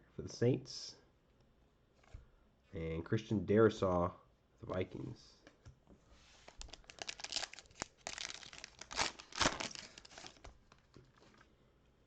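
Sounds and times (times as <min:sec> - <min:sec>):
card pack wrapper crinkling and ripping: 0:06.4 - 0:11.4.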